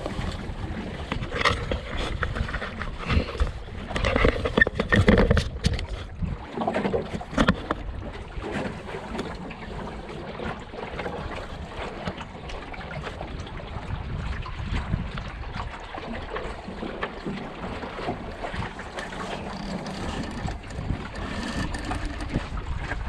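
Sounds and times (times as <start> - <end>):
water splashing against hull: 0.0 - 23.0
wind buffeting microphone: 0.0 - 23.0.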